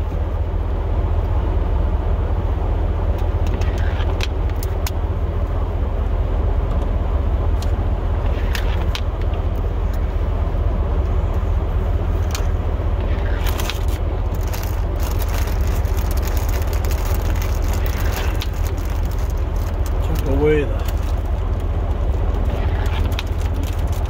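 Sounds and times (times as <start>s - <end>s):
pickup truck engine rumble: 0.0s - 24.0s.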